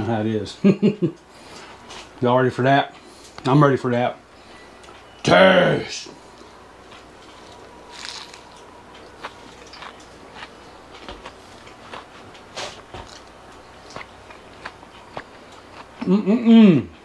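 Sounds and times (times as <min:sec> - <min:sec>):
person chewing a sandwich: 0:06.4 - 0:16.1.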